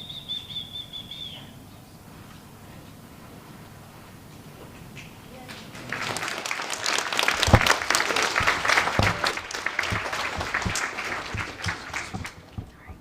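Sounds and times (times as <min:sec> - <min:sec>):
audience applauding: 0:05.5 - 0:12.9.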